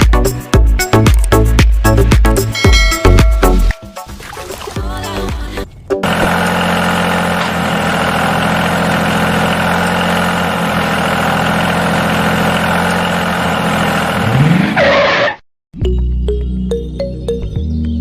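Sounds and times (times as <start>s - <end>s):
small engine running and revving: 6.0s - 14.8s.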